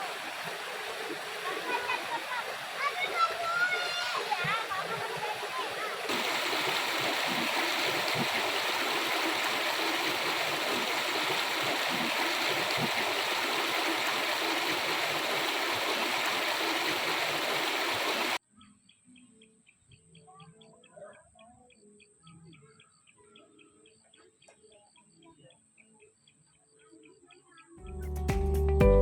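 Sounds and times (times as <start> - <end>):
river water rushing: 0.0 - 18.4
faint bird chirps: 18.4 - 27.8.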